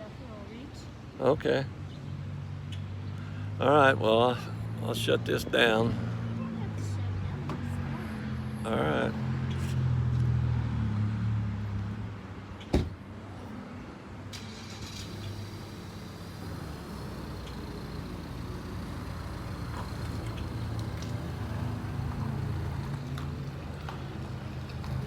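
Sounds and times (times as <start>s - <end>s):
vehicle engine running: 14.6s - 25.0s.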